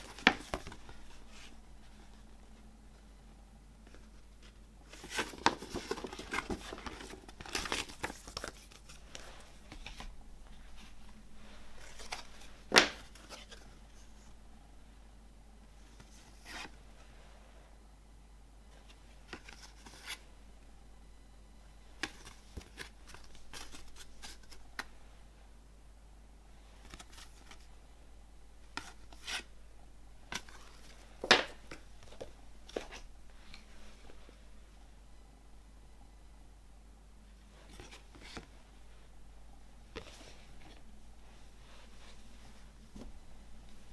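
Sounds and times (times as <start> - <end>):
cardboard and paper rustling: 0.0 - 2.3, 3.9 - 14.4, 18.7 - 20.2, 22.0 - 24.9, 26.8 - 27.7, 30.3 - 34.3, 37.5 - 38.6, 39.9 - 43.9
soft handling brush: 3.8 - 14.4, 39.8 - 43.9.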